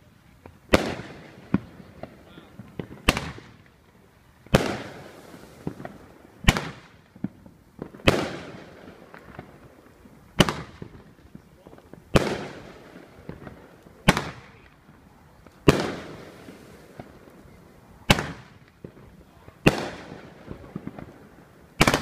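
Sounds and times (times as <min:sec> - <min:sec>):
fireworks bangs with rumble: 0:00.4 - 0:03.8, 0:04.4 - 0:17.2, 0:18.0 - 0:22.0
small firework pops: 0:00.4 - 0:21.2, 0:21.8 - 0:22.0.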